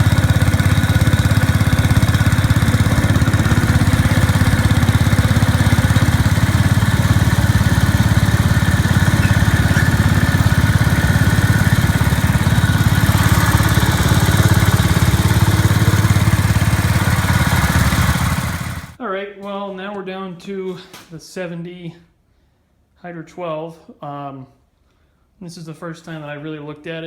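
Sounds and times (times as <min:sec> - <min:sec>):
small tractor engine idling: 0:00.0 - 0:19.0.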